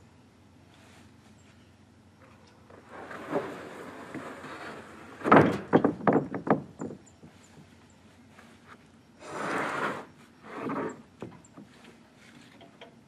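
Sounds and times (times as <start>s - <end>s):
rushing scraping noise: 2.7s - 5.4s, 9.2s - 11.0s
heavy thud on timber: 5.2s - 7.0s
small knocks on timber: 5.2s - 7.7s.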